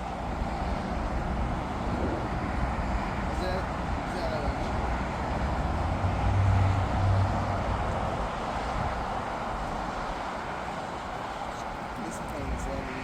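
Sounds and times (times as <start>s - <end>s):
rushing traffic or aircraft noise: 0.0s - 13.0s.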